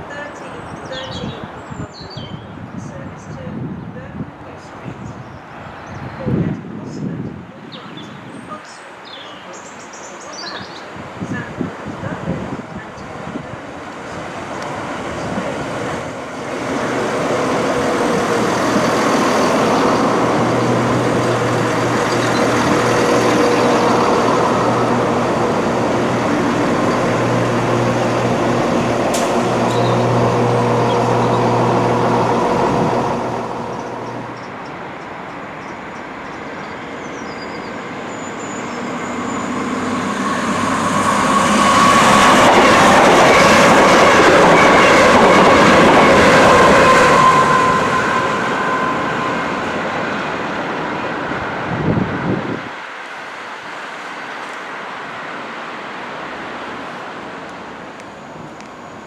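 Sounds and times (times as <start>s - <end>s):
approaching train rush: 0.0s - 59.0s
train rumbling: 10.9s - 59.0s
low hum: 26.4s - 34.5s.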